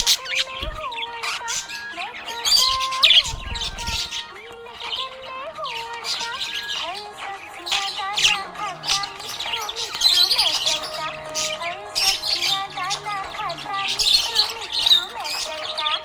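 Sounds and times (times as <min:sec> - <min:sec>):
budgerigars chirping and warbling: 0:00.0 - 0:16.0.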